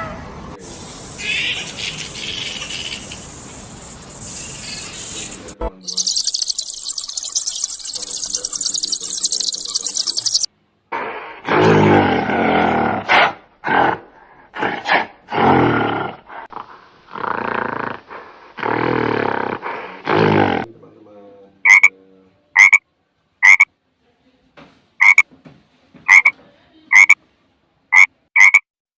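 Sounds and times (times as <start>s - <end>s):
deep animal calls: 5.8s - 10.5s
frog croaking: 5.8s - 10.5s, 21.6s - 21.9s, 22.6s - 22.8s, 23.4s - 23.7s, 25.0s - 25.2s, 26.1s - 26.3s, 26.9s - 27.2s, 27.9s - 28.6s.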